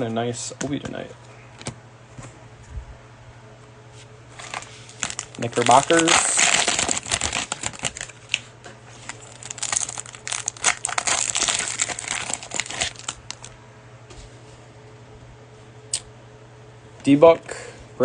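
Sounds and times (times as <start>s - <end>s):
cellophane wrapper crinkling: 4.4s - 13.6s.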